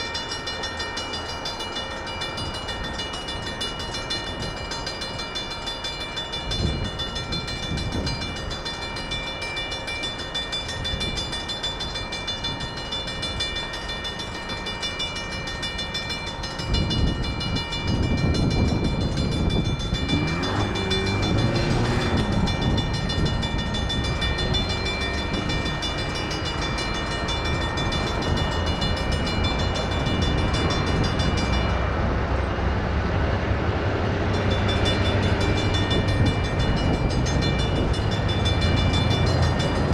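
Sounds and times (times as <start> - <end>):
locomotive rumble: 0.0 - 39.9
railroad crossing bells ringing: 0.0 - 39.9.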